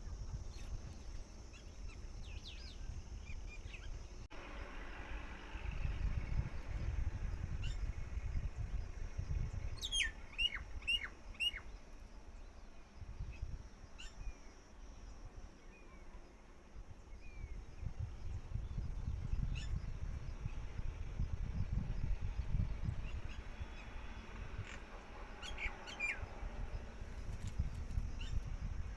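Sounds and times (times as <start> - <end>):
bird chirps: 9.4 - 15.0, 22.9 - 26.3.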